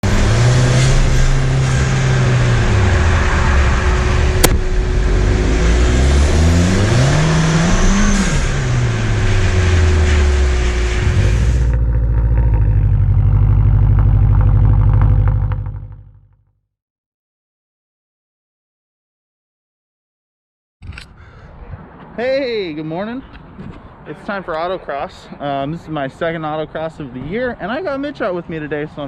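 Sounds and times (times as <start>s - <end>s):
road and wind noise: 0.0s - 16.1s, 20.8s - 29.0s
car engine revving: 0.0s - 16.2s.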